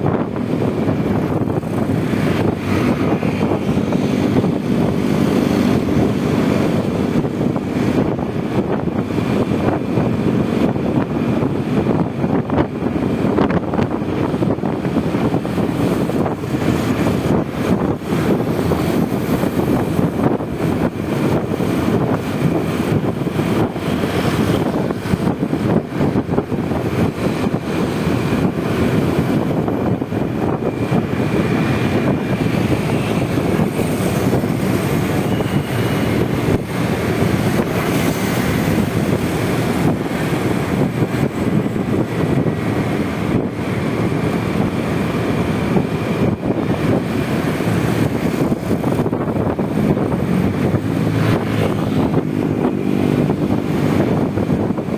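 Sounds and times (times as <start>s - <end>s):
scooter engine running: 0.0s - 12.0s, 12.8s - 54.9s
wind on microphone: 0.0s - 54.9s.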